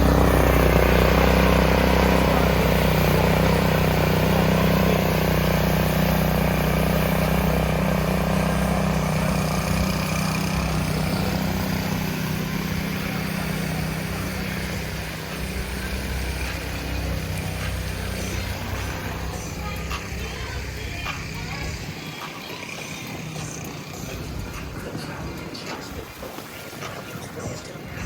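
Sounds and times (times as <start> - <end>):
street noise: 0.0 - 28.0
vehicle engine humming: 0.0 - 28.0.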